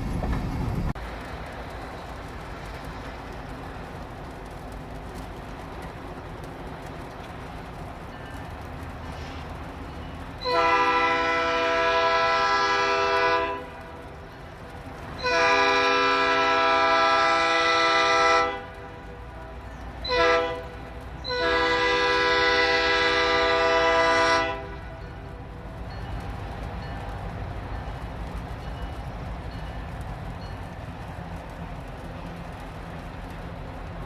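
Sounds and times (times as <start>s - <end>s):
locomotive horn blasts: 10.4s - 13.8s, 15.2s - 19.1s, 20.0s - 25.0s.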